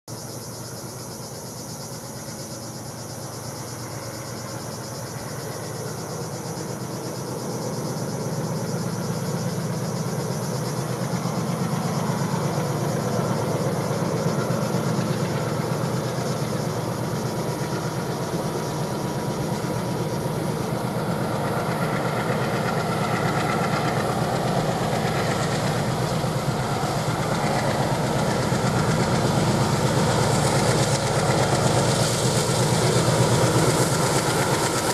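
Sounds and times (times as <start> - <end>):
locomotive engine rumble: 5.2 - 34.9.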